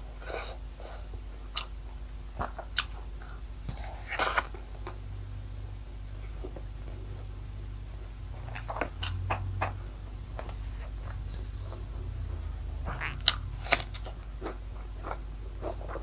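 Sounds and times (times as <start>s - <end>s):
steady low hum: 0.0s - 16.0s
person chewing with wet smacks: 1.0s - 1.8s, 2.4s - 3.1s, 8.4s - 9.8s, 10.4s - 16.0s.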